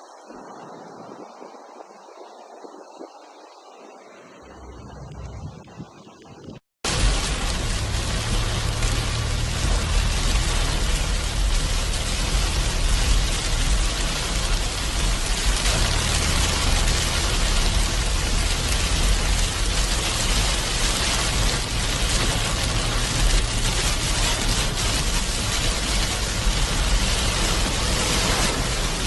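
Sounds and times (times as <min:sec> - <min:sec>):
low rumble: 0:04.4 - 0:29.0
heavy rain hissing: 0:06.9 - 0:29.0.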